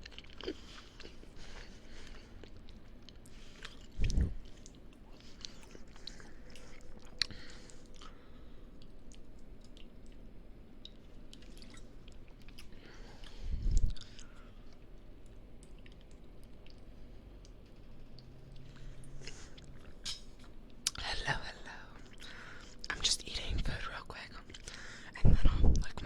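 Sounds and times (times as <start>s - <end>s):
wet chewing and biting: 0.0s - 21.0s.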